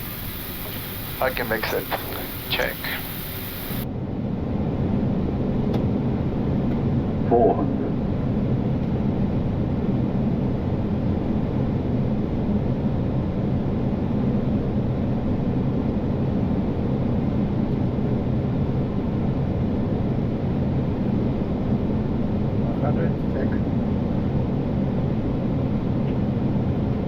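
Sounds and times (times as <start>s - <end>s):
low constant hum: 0.0s - 3.8s.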